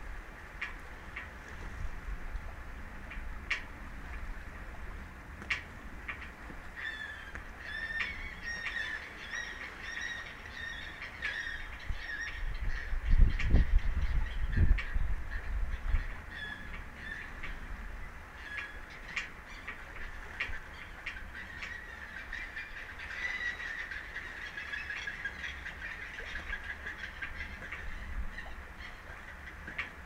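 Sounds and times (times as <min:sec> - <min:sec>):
birds honking calls: 0:06.7 - 0:29.8.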